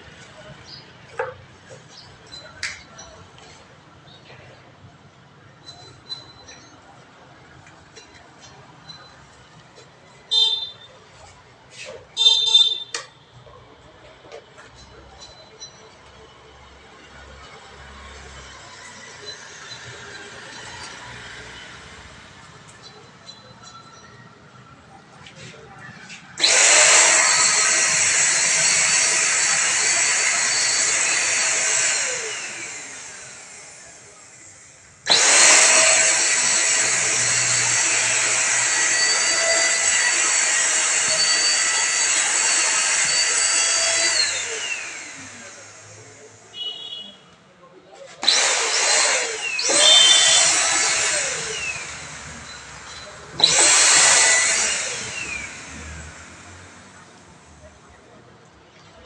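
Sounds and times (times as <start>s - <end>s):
handheld vacuum cleaner whining: 10.3s - 10.7s, 11.7s - 13.1s, 17.4s - 23.9s, 25.2s - 47.0s, 48.2s - 57.2s.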